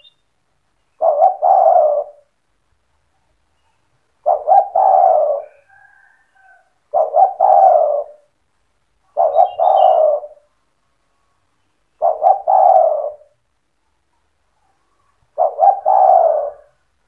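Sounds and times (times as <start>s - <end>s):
small bird chirping: 0.0s - 2.3s, 3.0s - 8.3s, 9.0s - 16.9s
dove cooing: 1.0s - 2.3s, 4.2s - 8.3s, 9.1s - 10.5s, 12.0s - 13.4s, 14.8s - 16.9s.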